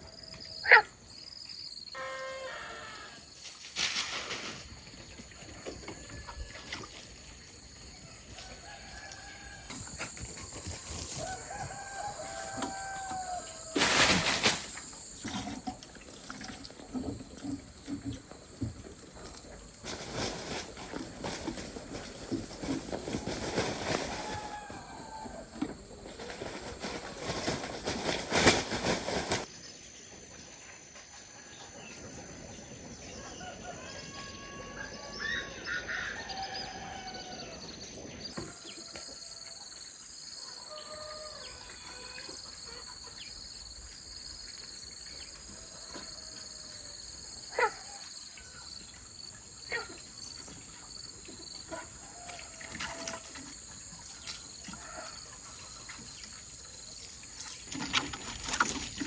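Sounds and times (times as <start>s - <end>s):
high insect drone: 0.6s - 3.8s
loud clattering and rustling: 3.4s - 4.9s, 9.7s - 29.5s, 52.7s - 59.0s.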